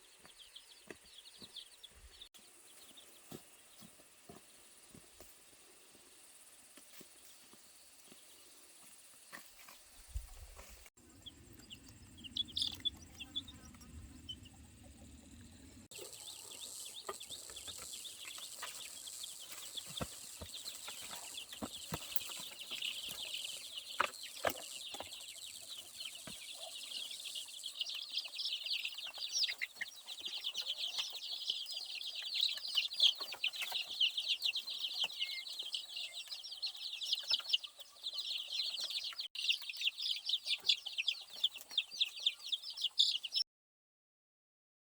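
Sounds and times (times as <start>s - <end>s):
baby chicks peeping: 0.0s - 5.3s, 6.8s - 43.4s
low rumble: 11.0s - 15.9s.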